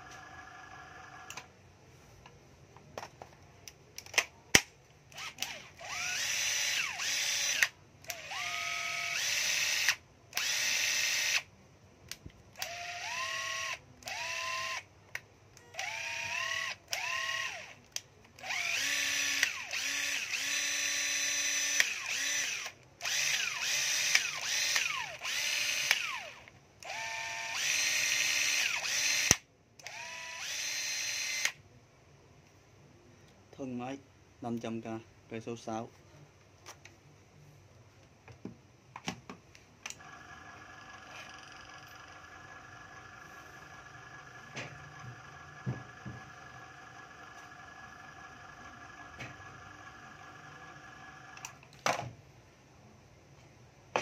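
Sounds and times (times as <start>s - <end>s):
cordless drill motor whining: 5.1s - 11.5s, 12.6s - 14.9s, 15.6s - 31.6s, 39.9s - 51.6s.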